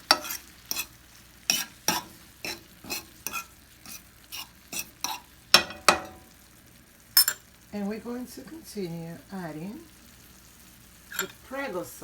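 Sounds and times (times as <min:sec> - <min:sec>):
utensil scraping a frying pan: 0:00.0 - 0:06.4, 0:11.0 - 0:11.5.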